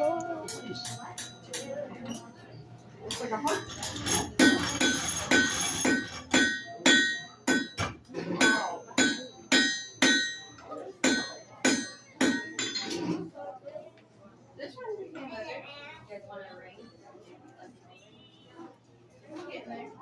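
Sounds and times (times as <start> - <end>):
hammer striking iron on anvil: 0.5 - 1.7, 3.1 - 12.9.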